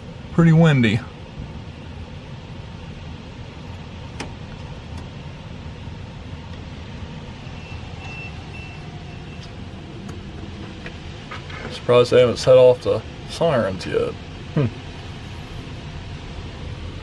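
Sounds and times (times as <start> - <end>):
strong wind rumbling: 4.7 - 17.0.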